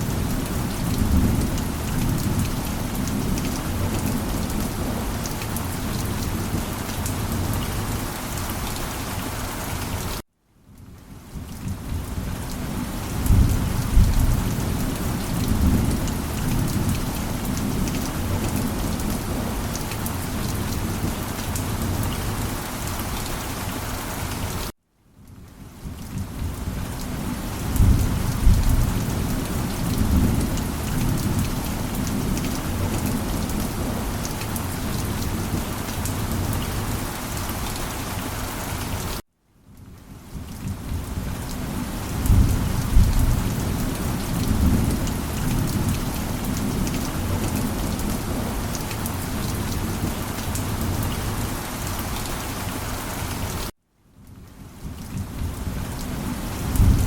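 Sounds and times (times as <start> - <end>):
heavy rain falling: 0.0 - 10.2, 10.8 - 24.7, 25.6 - 39.2, 39.9 - 53.7, 54.4 - 57.0
low thunder rumbles: 11.6 - 19.7, 26.1 - 37.0, 40.6 - 51.5, 56.5 - 57.0.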